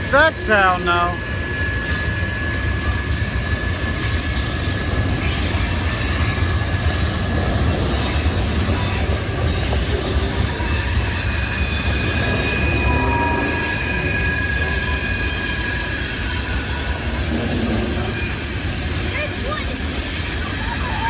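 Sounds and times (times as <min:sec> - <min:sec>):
freight train rumbling on rails: 0:00.0 - 0:21.0
high-pitched wheel squeal: 0:01.3 - 0:18.8.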